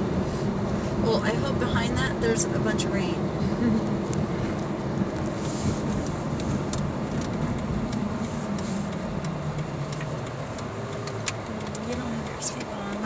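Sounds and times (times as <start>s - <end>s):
car engine and road hum: 0.0s - 13.0s
light irregular ticks: 4.1s - 13.0s.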